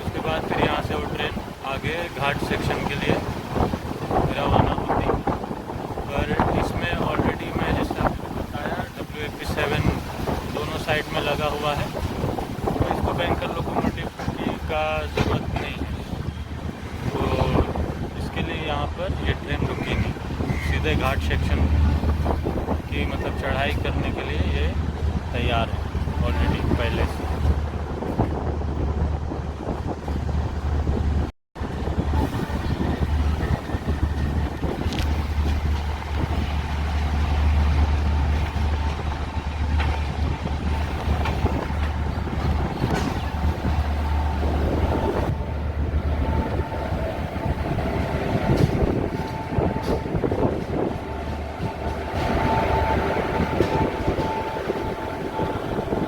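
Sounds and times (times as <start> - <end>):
train coaches rumbling: 0.0 - 56.0
wind noise on microphone: 0.0 - 56.0
knocks of train wheels: 47.7 - 55.4.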